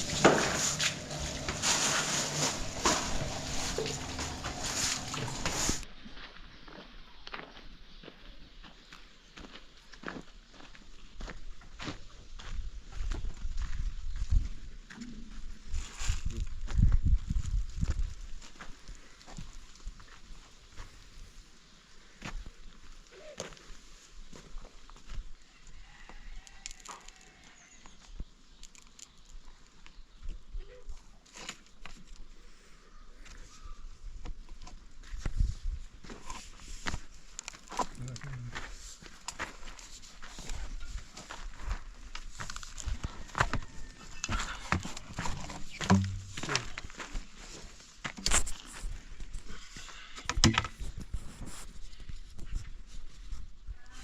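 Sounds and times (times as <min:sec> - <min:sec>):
knocks and clicks: 0:45.8 - 0:46.4.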